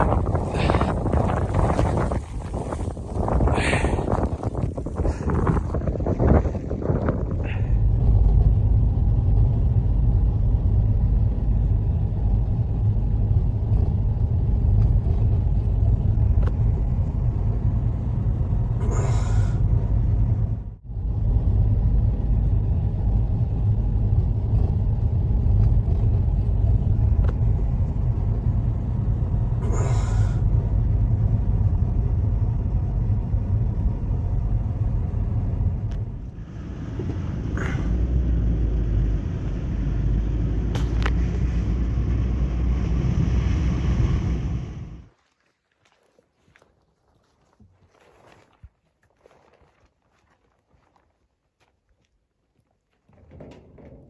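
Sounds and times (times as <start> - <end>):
hissing wind gusts: 0.0 - 8.0, 35.8 - 45.1
strong wind on microphone: 0.0 - 45.1.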